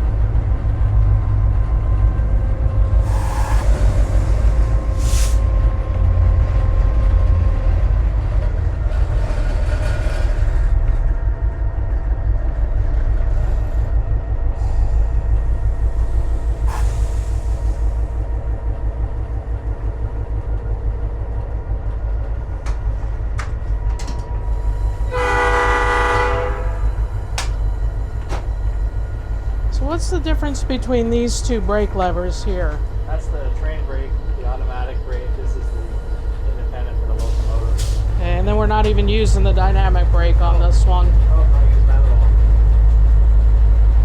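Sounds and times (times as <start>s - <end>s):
diesel locomotive engine rumbling: 0.0s - 44.0s
locomotive horn blast: 25.0s - 27.5s.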